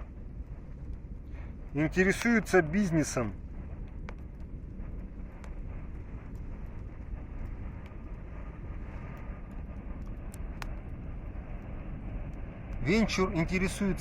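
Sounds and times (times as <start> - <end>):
campfire crackling and popping: 0.0 - 14.0
steady low rumble: 0.0 - 14.0.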